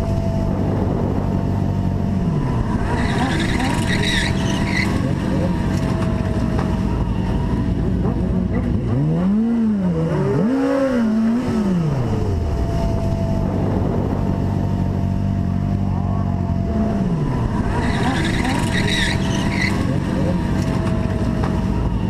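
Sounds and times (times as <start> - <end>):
vehicle engine revving: 0.0 - 22.0.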